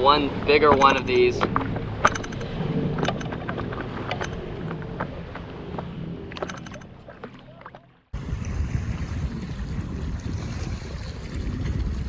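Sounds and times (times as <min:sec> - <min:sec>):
wind buffeting microphone: 0:08.1 - 0:12.0.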